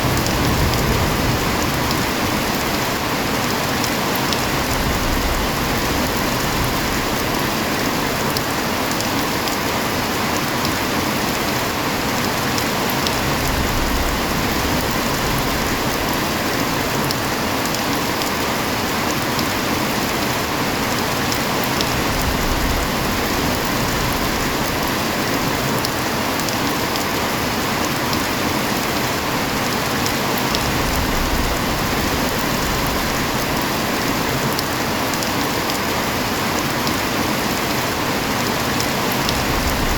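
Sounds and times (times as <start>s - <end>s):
heavy rain hiss: 0.0s - 10.4s.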